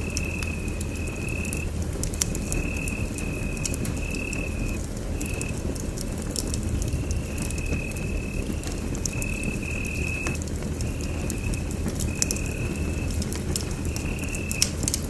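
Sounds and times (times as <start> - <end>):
wood fire crackling: 0.0 - 15.0
high whistling tone: 2.6 - 5.5, 7.0 - 13.2, 13.8 - 14.6.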